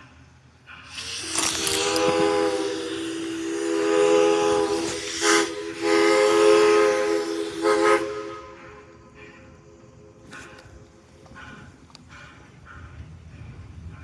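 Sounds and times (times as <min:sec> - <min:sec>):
rush of steam: 0:00.0 - 0:14.0
steam locomotive whistle: 0:00.8 - 0:09.6.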